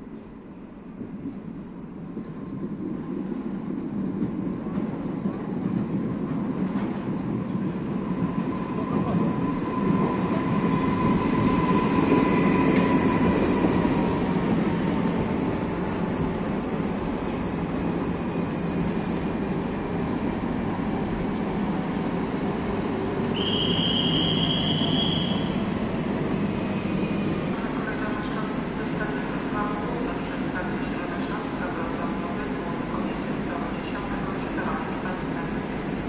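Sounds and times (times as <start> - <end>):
train rumbling slowly: 0.0 - 36.0
high squeal: 23.4 - 25.6.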